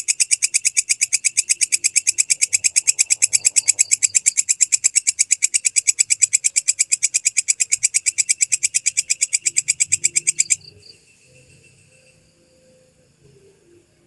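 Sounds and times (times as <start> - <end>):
katydid shrill pulsed call: 0.0 - 13.1.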